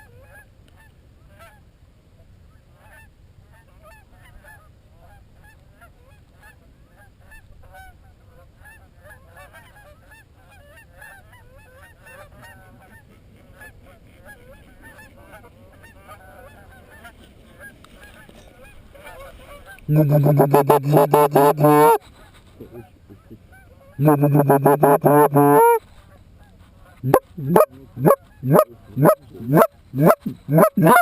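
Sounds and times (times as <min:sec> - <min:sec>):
geese honking: 0:19.9 - 0:22.0, 0:24.0 - 0:25.8, 0:27.0 - 0:31.0.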